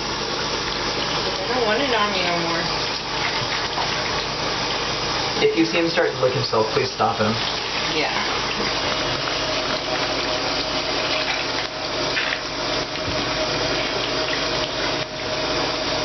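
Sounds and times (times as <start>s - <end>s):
water running from a tap: 0.0s - 16.0s.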